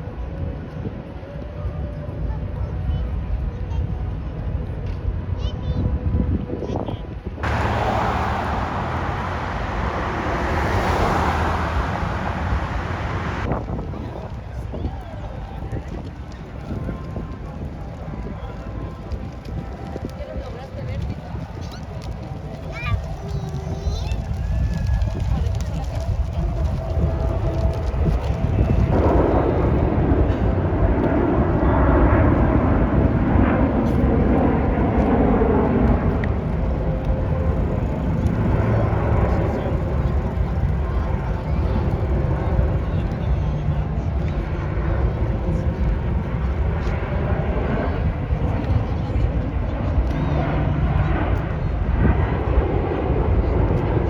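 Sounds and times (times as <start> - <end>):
jets roaring overhead: 7.4 - 14.5, 21.1 - 54.0.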